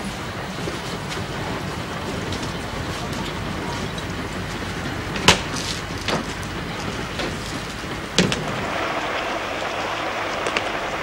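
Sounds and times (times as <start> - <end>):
heavy rain: 0.0 - 11.0
sharp knocks: 5.2 - 6.4, 8.0 - 8.6.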